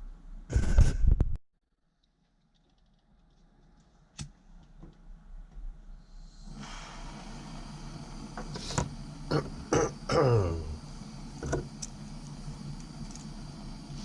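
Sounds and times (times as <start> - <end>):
parts clicking and knocking: 2.0 - 5.0
blowtorch hissing: 6.0 - 14.0.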